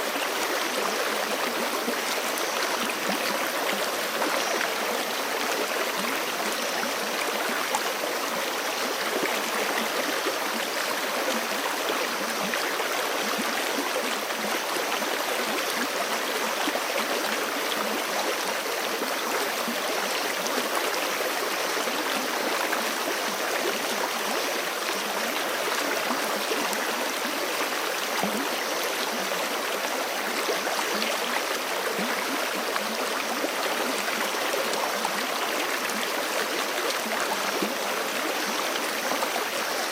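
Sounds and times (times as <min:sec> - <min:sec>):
creek flowing water: 0:00.0 - 0:39.9.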